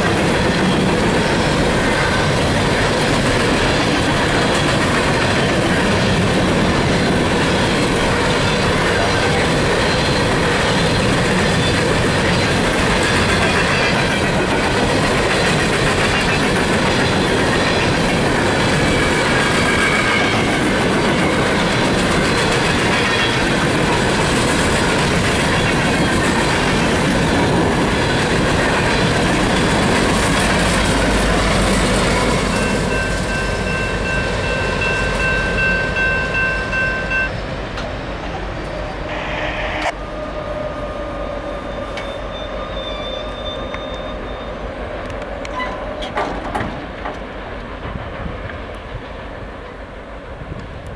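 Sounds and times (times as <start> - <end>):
train rumbling past: 0.0 - 50.9
steady high tone: 31.0 - 37.6, 38.2 - 44.7
faint wheel squeal: 38.8 - 44.6
wheel clatter over rail joints: 45.1 - 48.8.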